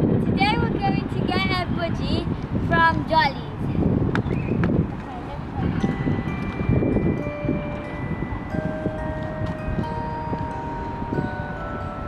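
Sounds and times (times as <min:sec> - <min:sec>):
chime-like bell notes: 0:05.8 - 0:12.0.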